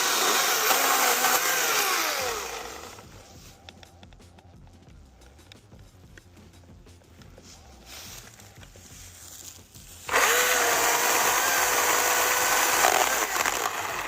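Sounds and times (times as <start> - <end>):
electric chainsaw motor whine: 0.0 - 3.1, 10.0 - 14.0.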